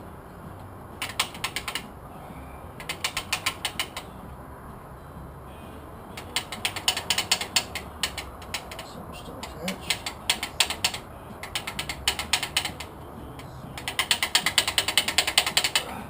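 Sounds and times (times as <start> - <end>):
ratchet wrench clicking: 1.0 - 1.8, 2.8 - 4.0, 6.2 - 8.9, 9.7 - 12.9, 13.8 - 15.9.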